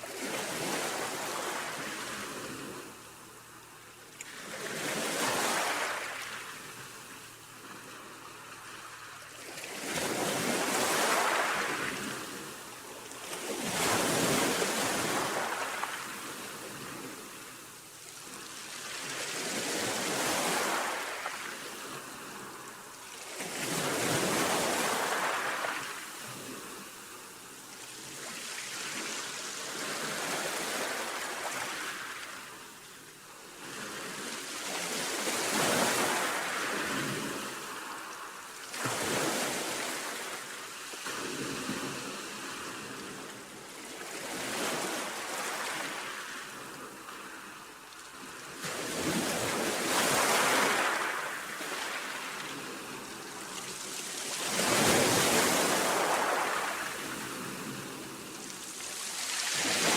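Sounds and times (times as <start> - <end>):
sea waves breaking: 7.6 - 12.6, 48.6 - 59.9.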